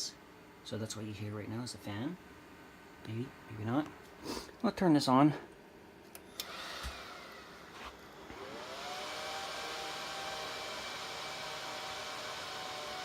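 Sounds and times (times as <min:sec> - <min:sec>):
cooling fans whirring: 0:00.0 - 0:13.0.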